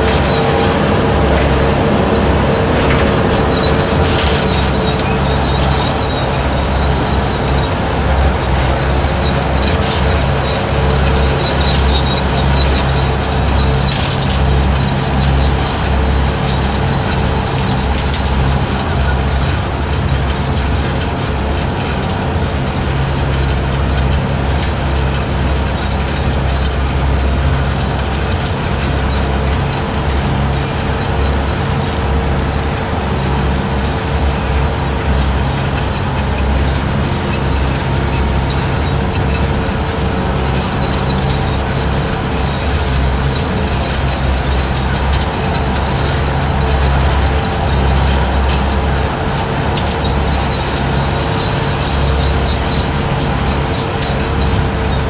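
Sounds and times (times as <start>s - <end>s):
brush cutter cutting grass: 0.0s - 13.6s, 26.9s - 40.0s
engine running steadily: 0.0s - 55.0s.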